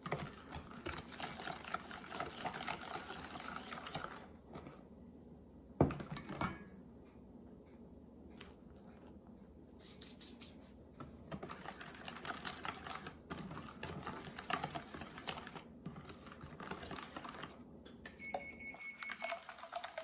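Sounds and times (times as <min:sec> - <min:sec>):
steady electronic beep tone: 0:18.2 - 0:19.4.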